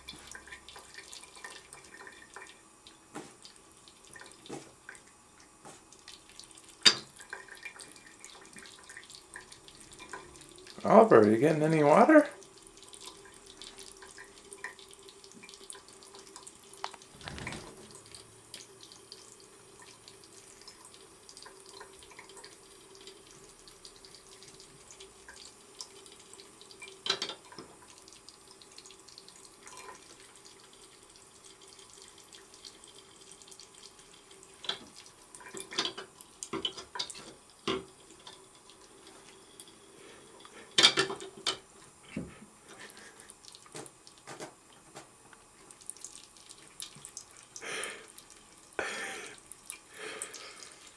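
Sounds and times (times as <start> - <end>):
faucet running into sink: 5.8 - 41.6.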